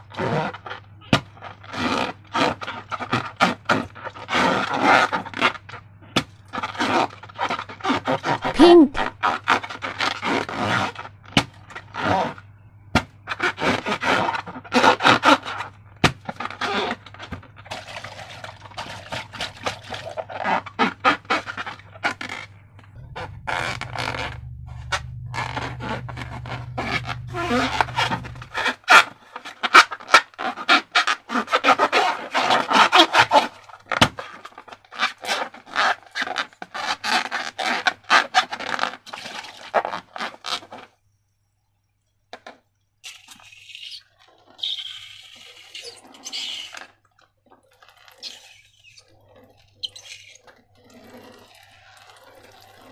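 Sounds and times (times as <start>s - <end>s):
slime squelching by hand: 13.3s - 40.8s, 43.1s - 52.9s.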